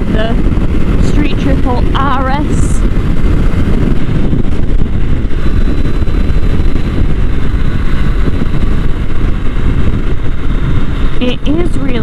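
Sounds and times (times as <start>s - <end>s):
motorcycle engine noise: 0.0s - 12.0s
rush of wind: 0.0s - 12.0s.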